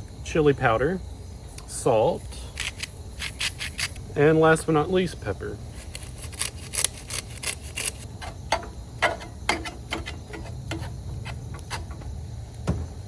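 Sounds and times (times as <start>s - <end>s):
pepper grinder rasping clicks: 2.5s - 4.0s, 5.8s - 8.1s.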